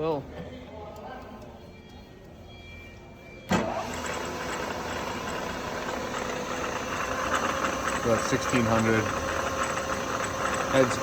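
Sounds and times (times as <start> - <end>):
mill spindle whining: 2.6 - 11.0.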